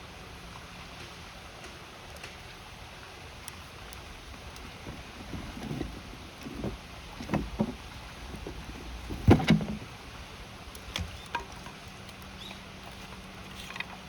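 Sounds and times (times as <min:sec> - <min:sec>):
campfire: 0:00.0 - 0:14.0
knocks and thumps: 0:04.9 - 0:09.9.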